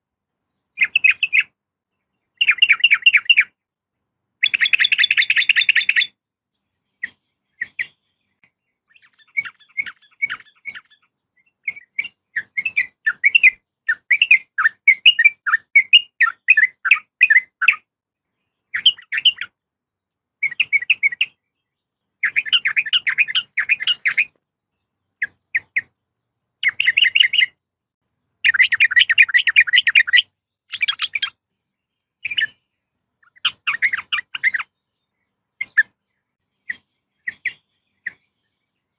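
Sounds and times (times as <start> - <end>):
bird chattering calls: 7.0 - 8.0, 8.9 - 17.8, 22.2 - 24.3, 25.2 - 26.0, 26.6 - 27.6, 28.4 - 31.4, 32.2 - 32.6, 33.2 - 34.7, 36.7 - 38.2.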